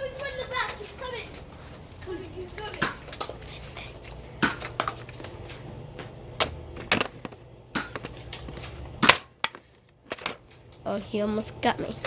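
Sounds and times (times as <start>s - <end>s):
darts striking: 4.4s - 4.9s, 6.4s - 8.1s, 9.0s - 9.6s.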